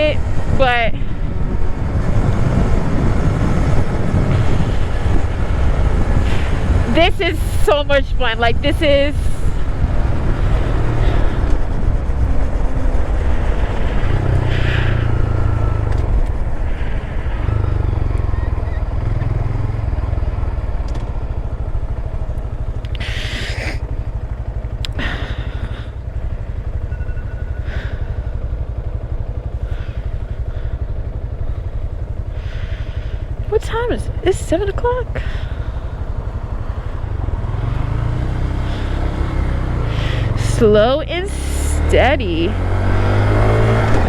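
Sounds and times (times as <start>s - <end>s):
wind rumble on microphone: 0.0s - 41.2s
motorcycle engine running: 0.0s - 44.0s
hissing rushes: 12.5s - 18.3s, 22.9s - 24.3s.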